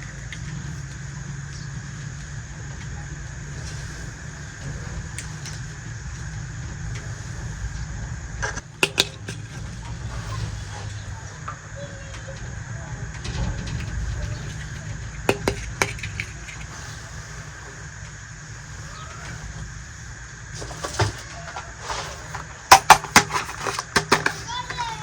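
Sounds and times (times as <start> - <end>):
toy pieces clicking: 8.8 - 9.7, 13.8 - 16.8, 22.7 - 24.6.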